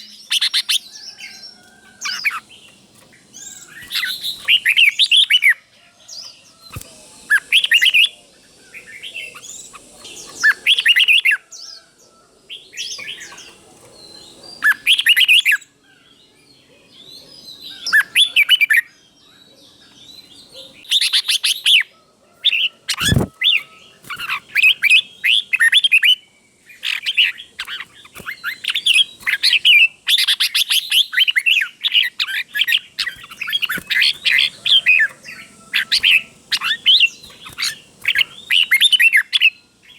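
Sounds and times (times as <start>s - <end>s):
bulbul whistled song: 6.6s - 8.2s.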